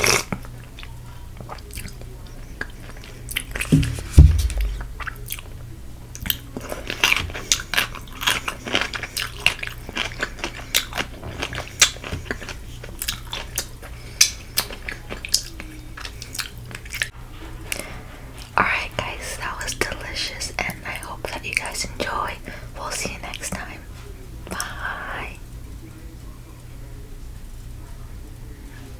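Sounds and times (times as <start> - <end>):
crunchy chewing of fried chicken: 0.0 - 3.8, 4.4 - 25.3.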